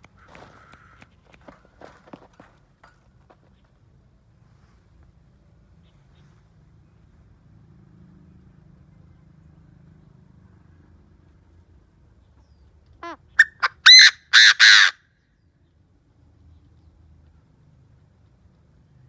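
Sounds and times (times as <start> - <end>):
francolin calling harsh notes: 13.4 - 14.9.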